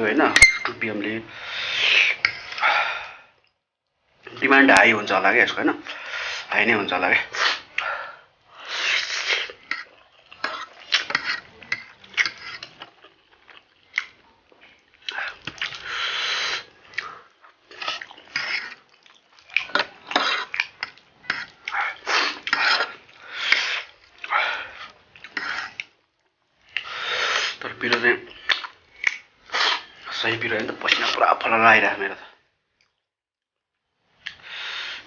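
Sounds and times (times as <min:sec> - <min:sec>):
person sniffing: 0:07.3 - 0:07.8, 0:08.6 - 0:09.6, 0:15.8 - 0:17.3, 0:26.8 - 0:27.6, 0:29.5 - 0:29.9, 0:34.4 - 0:35.0
slurping noodles: 0:08.6 - 0:26.0, 0:26.6 - 0:30.2
chewing: 0:08.9 - 0:27.0, 0:28.0 - 0:30.1.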